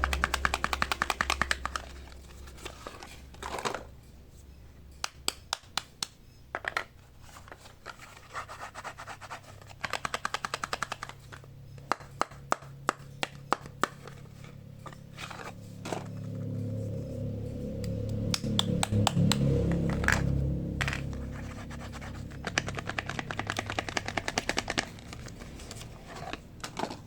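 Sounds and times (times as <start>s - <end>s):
packaging taps and clicks: 0.0s - 3.8s, 9.6s - 14.2s, 22.4s - 27.0s.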